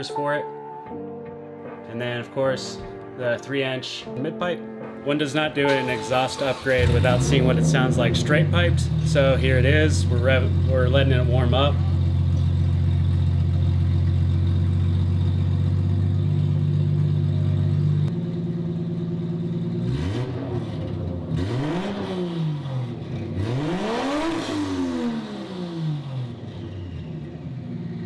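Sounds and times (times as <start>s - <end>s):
car engine idling and revving: 5.6s - 28.0s.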